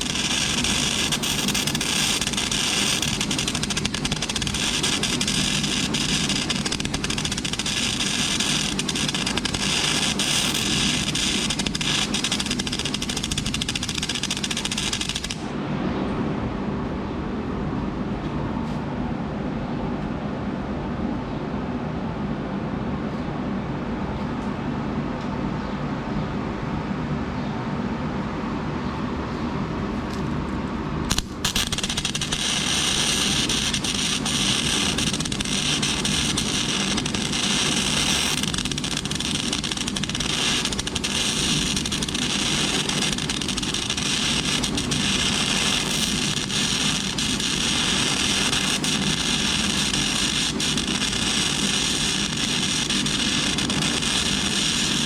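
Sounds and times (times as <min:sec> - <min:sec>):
welder hum: 0:00.0 - 0:15.5, 0:31.1 - 0:55.0
welding arc click: 0:00.0 - 0:15.5, 0:31.1 - 0:55.0
welding arc crackling hiss: 0:00.0 - 0:15.5, 0:31.1 - 0:55.0.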